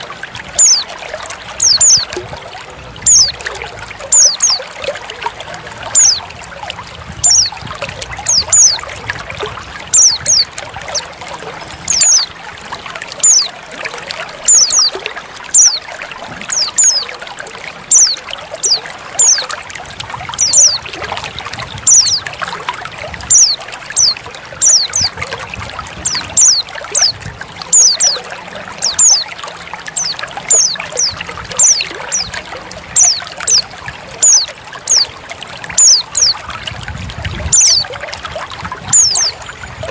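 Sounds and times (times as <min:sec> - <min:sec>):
trickling water: 0:00.0 - 0:39.9
bird calling in high sliding notes: 0:09.9 - 0:12.4.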